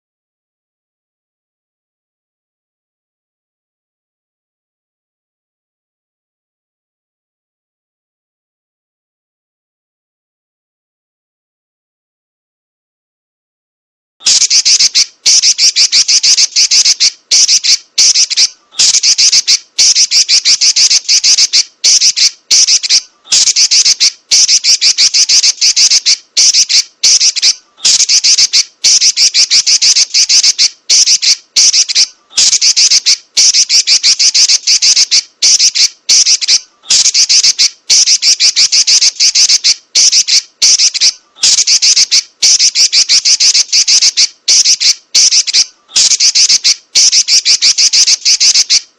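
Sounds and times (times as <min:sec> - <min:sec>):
bird chattering calls and trills: 0:14.2 - 0:48.9.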